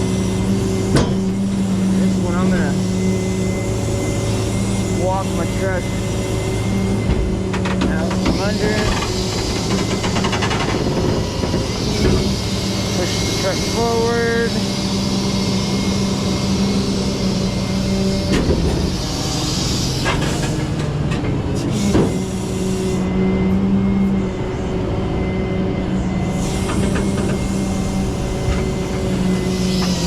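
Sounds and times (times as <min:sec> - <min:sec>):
tow truck engine drone: 0:00.0 - 0:30.0
sharp knocks and clunks: 0:07.0 - 0:12.3.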